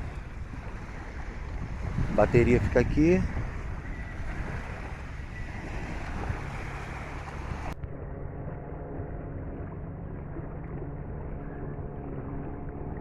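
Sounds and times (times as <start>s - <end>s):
water noise: 0.0s - 13.0s
wind buffeting microphone: 0.0s - 13.0s
electric trolling motor hum: 3.4s - 13.0s.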